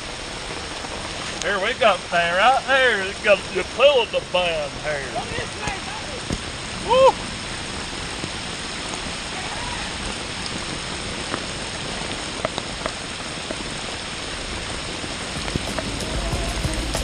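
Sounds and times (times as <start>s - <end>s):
rain falling: 0.0s - 17.0s
raindrops ticking close by: 0.0s - 17.0s.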